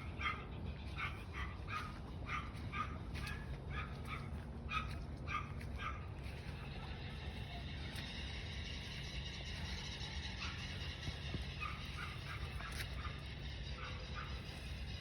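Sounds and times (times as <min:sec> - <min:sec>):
dog yapping: 0:00.0 - 0:06.1, 0:11.6 - 0:14.4.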